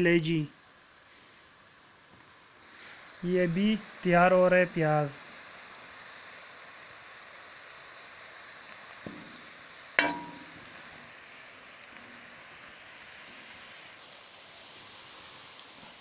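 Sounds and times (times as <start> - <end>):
onions sizzling in oil: 0.0 - 16.0
ladle clanking against pan: 10.0 - 10.6.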